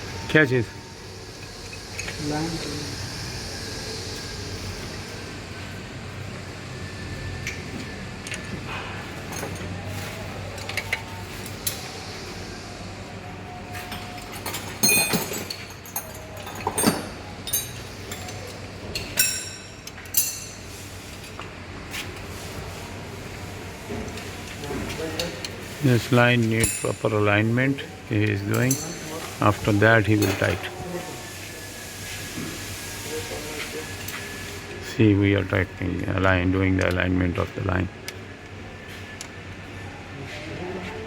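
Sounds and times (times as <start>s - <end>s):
metal tools clinking: 13.8s - 21.4s, 25.2s - 29.4s, 30.1s - 30.6s.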